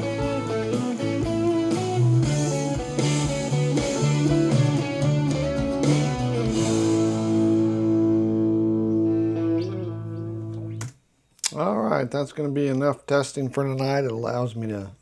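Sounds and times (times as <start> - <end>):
band music with electric guitar: 0.0 - 10.9.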